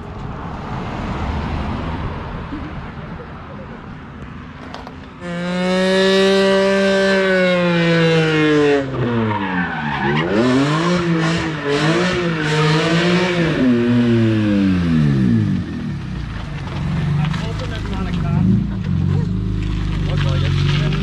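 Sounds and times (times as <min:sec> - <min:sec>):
car engine revving: 0:04.6 - 0:21.0.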